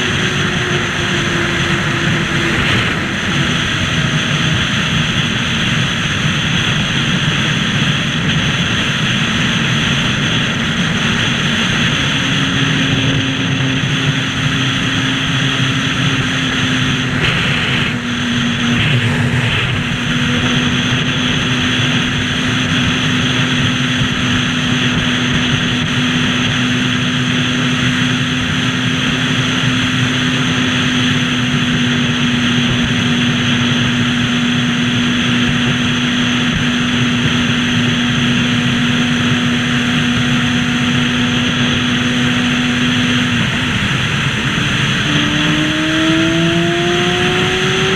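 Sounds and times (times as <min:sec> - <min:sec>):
motorcycle engine cruising: 0:00.0 - 0:47.9
wind noise: 0:00.0 - 0:47.9.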